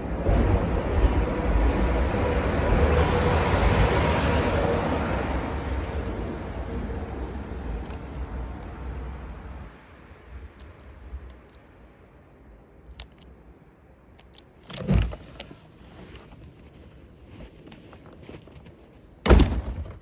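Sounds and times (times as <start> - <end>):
wind rumbling on microphone: 0.0 - 12.0
loud thud: 19.2 - 20.0.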